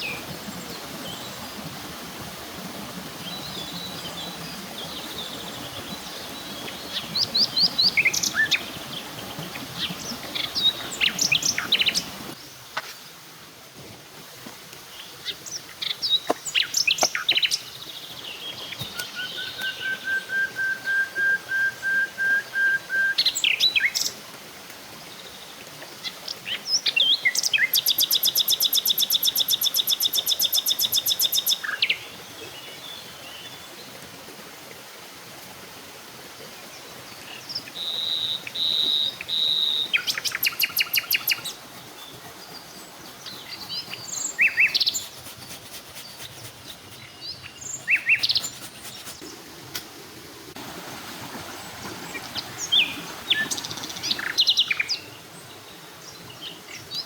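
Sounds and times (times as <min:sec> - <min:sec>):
forest birds calling: 0:03.2 - 0:13.1, 0:14.9 - 0:24.1, 0:37.1 - 0:49.4, 0:51.6 - 0:57.0.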